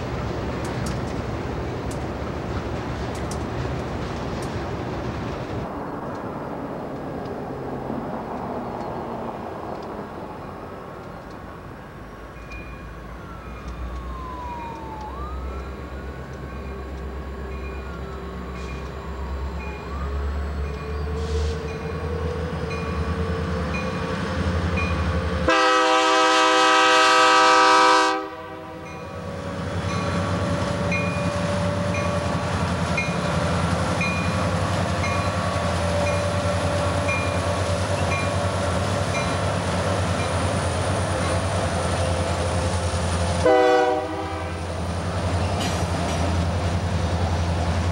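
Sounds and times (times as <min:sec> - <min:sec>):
diesel locomotive engine rumbling: 0:00.0 - 0:47.9
locomotive air horn blast: 0:25.4 - 0:28.9, 0:43.4 - 0:44.7.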